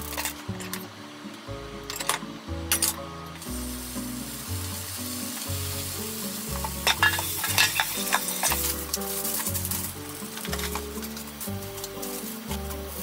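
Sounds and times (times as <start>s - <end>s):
soft background music: 0.0s - 13.0s
food sizzling in hot oil: 3.3s - 13.0s.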